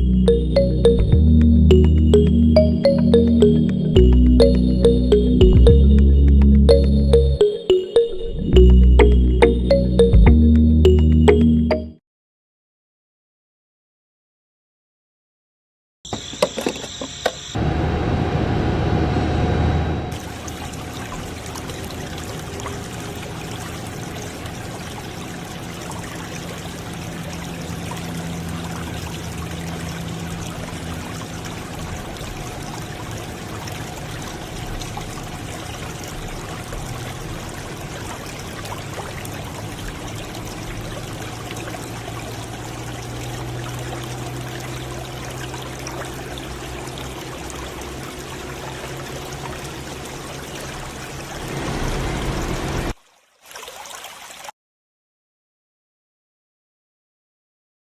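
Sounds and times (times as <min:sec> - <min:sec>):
liquid pouring and trickling: 0:20.2 - 0:54.5.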